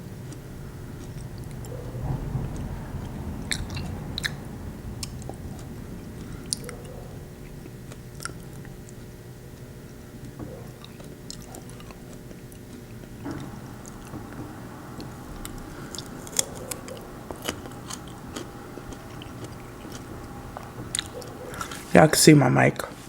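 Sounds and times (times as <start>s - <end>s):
faint steady hum: 0.0s - 23.0s
person chewing food: 15.9s - 21.8s.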